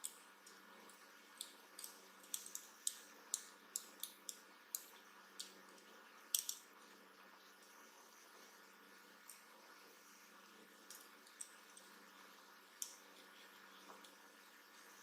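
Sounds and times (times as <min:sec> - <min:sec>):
light sharp clicks and taps: 0:00.0 - 0:06.7, 0:12.8 - 0:14.2.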